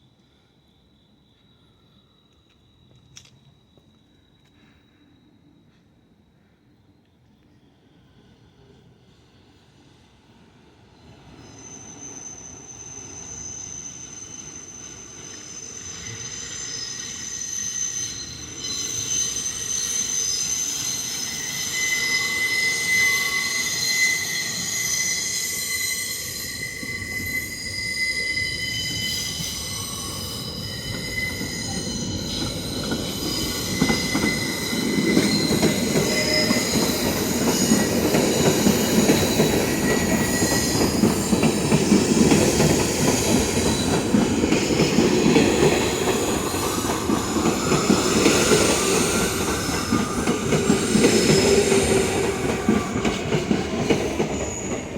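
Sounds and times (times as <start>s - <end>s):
subway train wheels squealing: 0.0s - 54.9s
deep train rumble: 28.4s - 54.9s.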